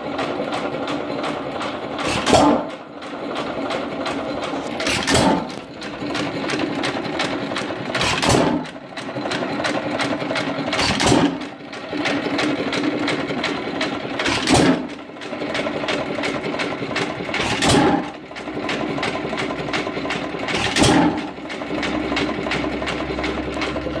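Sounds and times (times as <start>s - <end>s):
rapid mechanical clatter: 0.0s - 24.0s
hit-and-miss engine firing: 1.0s - 8.8s, 10.8s - 11.6s, 14.2s - 15.0s, 17.4s - 24.0s.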